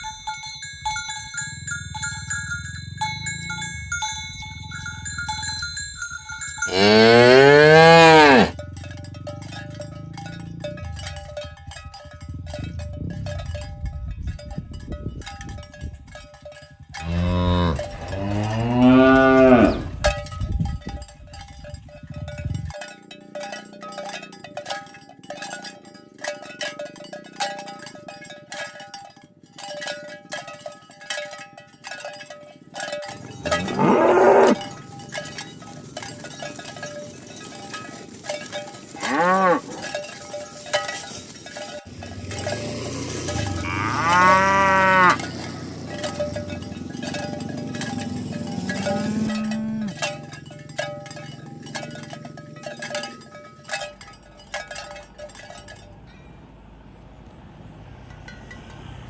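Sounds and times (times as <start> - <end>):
cattle walking: 0.0 - 56.4
cattle bells clanking: 0.0 - 59.0
cow mooing: 6.6 - 8.6, 17.0 - 20.1, 33.1 - 34.8, 39.0 - 39.9, 41.9 - 50.3.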